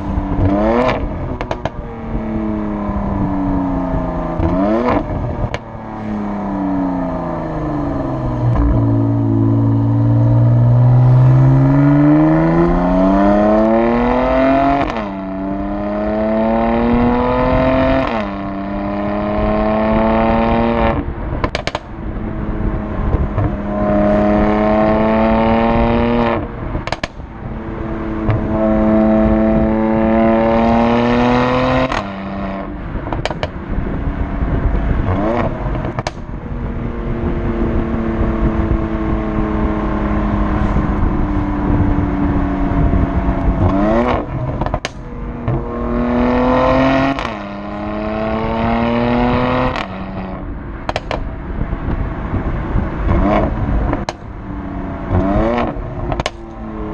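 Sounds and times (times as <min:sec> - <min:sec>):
car engine accelerating hard: 0:00.0 - 0:56.9
exhaust cracks: 0:26.4 - 0:29.7, 0:31.8 - 0:36.8, 0:39.8 - 0:47.7, 0:49.4 - 0:54.5, 0:55.1 - 0:56.8.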